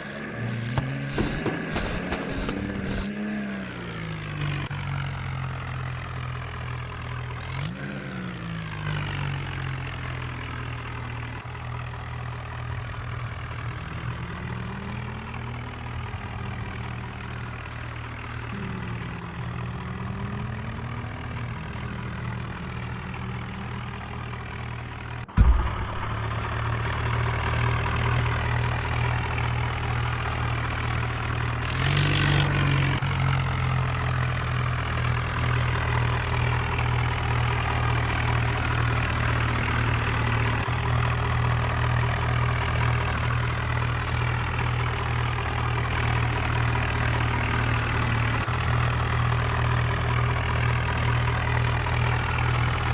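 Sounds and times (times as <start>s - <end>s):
sharp thump: 0.0s - 3.3s, 25.3s - 27.7s
tractor diesel engine running: 0.0s - 52.9s.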